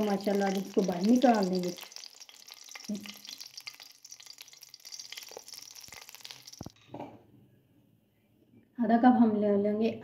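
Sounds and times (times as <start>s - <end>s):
eggplants sizzling in oil: 0.0s - 6.8s.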